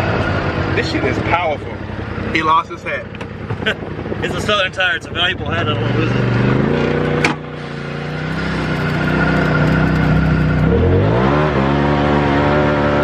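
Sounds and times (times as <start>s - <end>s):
engine revving: 0.0s - 13.0s
thin turbo whine: 2.0s - 11.1s.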